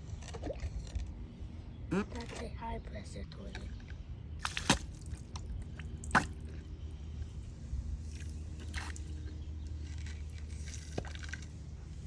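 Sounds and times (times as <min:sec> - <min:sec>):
water dripping and squelching: 0:04.4 - 0:12.0.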